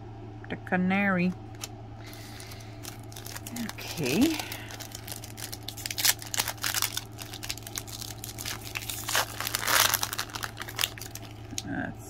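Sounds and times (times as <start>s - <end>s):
foil wrapper crinkling: 2.0s - 11.6s
foil wrapper tearing: 2.0s - 11.6s.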